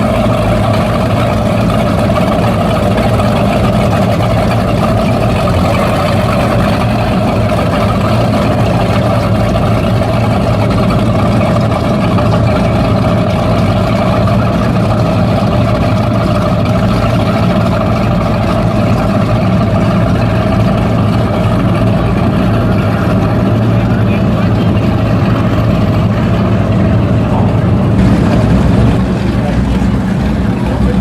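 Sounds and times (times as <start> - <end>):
powerboat engines idling: 0.0 - 31.0.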